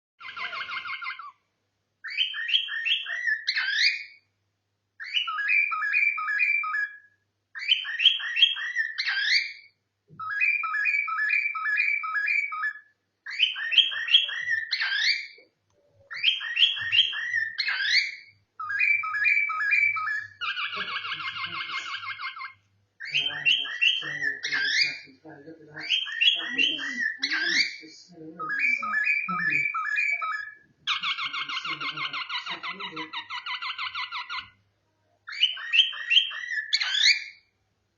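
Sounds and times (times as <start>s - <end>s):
cockatiel whistling: 2.0s - 4.2s, 5.0s - 7.0s, 7.6s - 15.4s, 16.1s - 25.0s, 28.4s - 34.5s, 35.3s - 37.4s.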